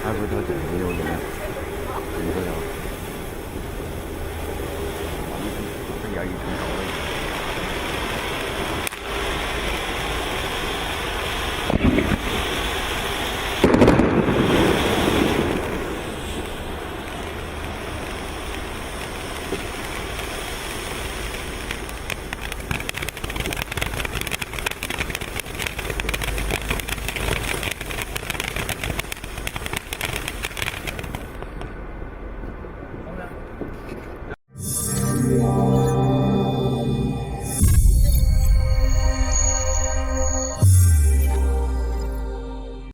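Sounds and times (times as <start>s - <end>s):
firework fountain hissing: 0.0s - 31.5s
dense rapid crackling: 13.6s - 31.4s.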